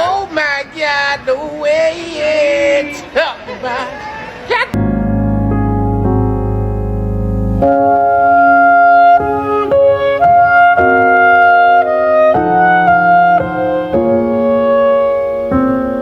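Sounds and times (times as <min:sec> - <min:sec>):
organ-like keyboard chords: 0:04.8 - 0:16.0.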